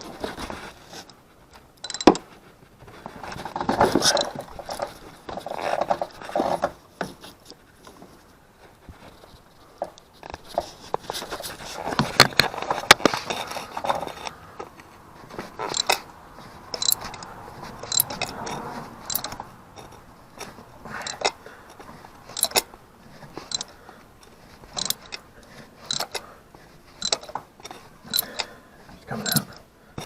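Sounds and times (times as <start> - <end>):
scraping and rustling: 0.0 - 30.0
socket wrench ratchet clicking: 15.6 - 16.0, 16.8 - 17.2, 17.9 - 18.3, 19.0 - 19.4, 21.0 - 21.4, 22.3 - 22.6, 23.5 - 23.7, 24.8 - 25.2, 25.9 - 26.2, 27.0 - 27.4, 28.1 - 28.5, 29.2 - 29.4.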